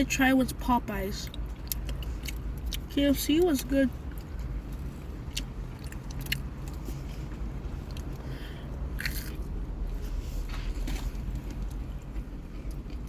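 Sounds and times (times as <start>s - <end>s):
steady low hum: 0.0s - 13.0s
person chewing food: 1.2s - 2.9s, 3.9s - 13.0s.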